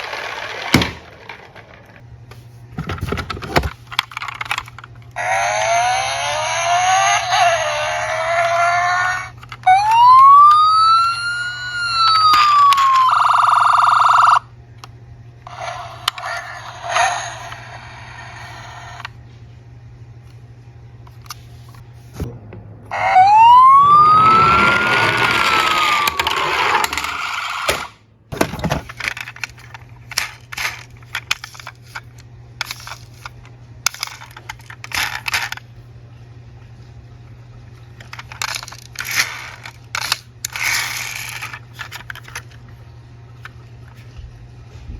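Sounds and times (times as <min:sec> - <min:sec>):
toy cars clicking and clattering: 0:00.0 - 0:02.0, 0:03.1 - 0:14.4, 0:15.5 - 0:19.1, 0:24.2 - 0:27.9, 0:28.6 - 0:35.6, 0:38.0 - 0:42.6
police siren wailing: 0:05.2 - 0:14.4, 0:22.9 - 0:27.8.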